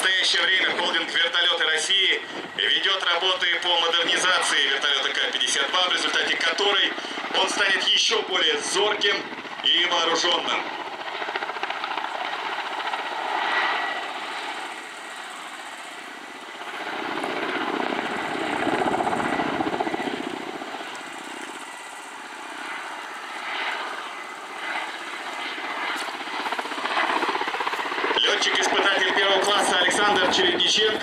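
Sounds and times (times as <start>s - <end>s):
helicopter rotor and turbine: 0.0s - 31.0s.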